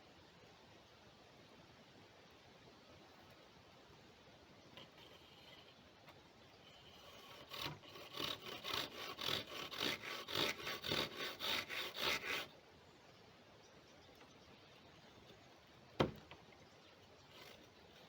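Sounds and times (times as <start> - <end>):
hand saw cutting wood: 6.8 - 12.5, 17.2 - 18.0.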